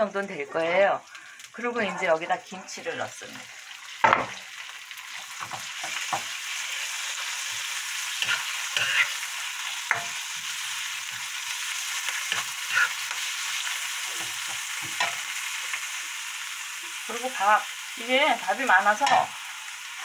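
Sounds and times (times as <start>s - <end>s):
food sizzling in a pan: 0.0s - 20.0s
spatula scraping and tapping pan: 5.1s - 6.4s, 7.4s - 11.3s, 12.0s - 15.3s.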